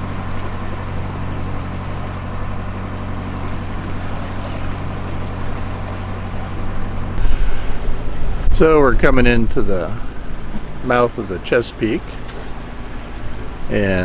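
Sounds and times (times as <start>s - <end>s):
low engine drone: 0.0s - 14.0s
hiss of water and air: 6.6s - 8.8s.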